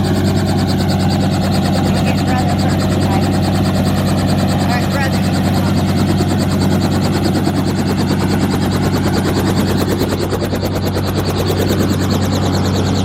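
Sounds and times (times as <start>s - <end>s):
helicopter engine and turbine hum: 0.0s - 13.0s
rotor blades chopping: 0.0s - 13.0s.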